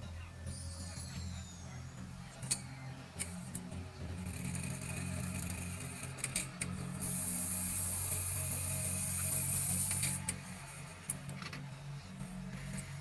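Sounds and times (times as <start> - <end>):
sharp machine clicks: 4.2 - 10.4
high hiss: 7.0 - 10.2.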